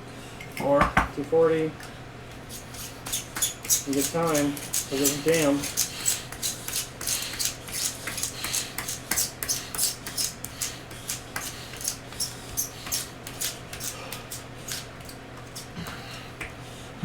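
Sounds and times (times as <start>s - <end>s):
steady low hum: 0.0s - 17.0s
pencil sharpener scraping and clicking: 2.7s - 12.0s.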